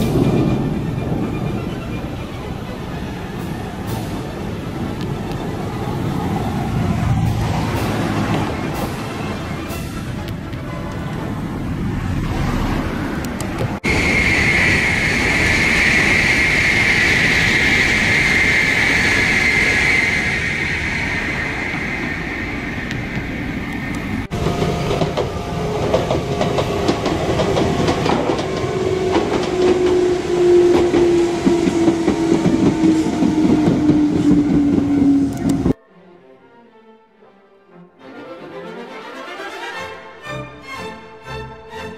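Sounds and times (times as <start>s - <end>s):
wheels clattering on rails: 22.7s - 35.8s.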